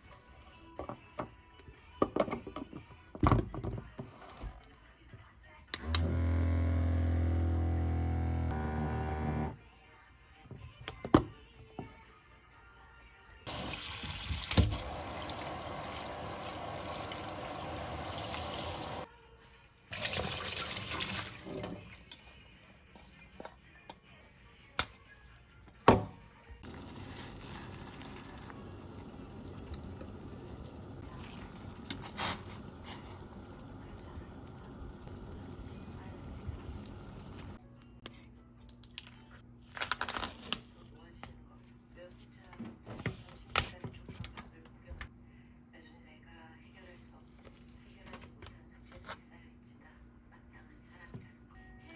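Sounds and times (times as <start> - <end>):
tap running into sink: 13.5 - 14.9.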